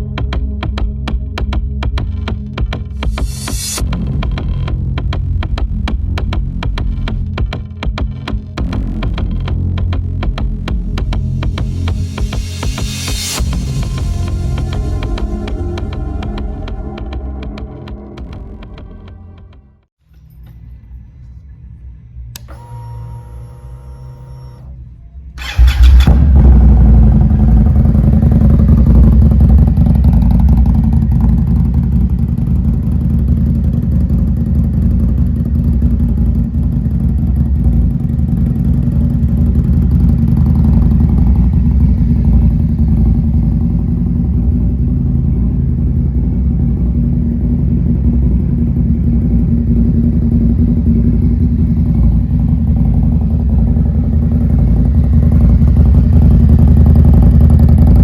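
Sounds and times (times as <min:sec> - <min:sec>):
motorcycle engine starting and idling: 0:00.0 - 0:19.8, 0:22.3 - 0:58.0.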